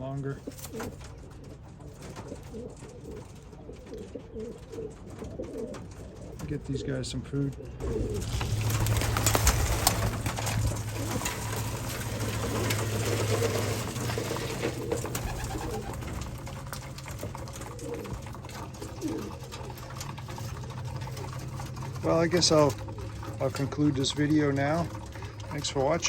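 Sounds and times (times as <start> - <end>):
pigeons cooing: 0.0 - 26.0
steady low hum: 6.3 - 26.0.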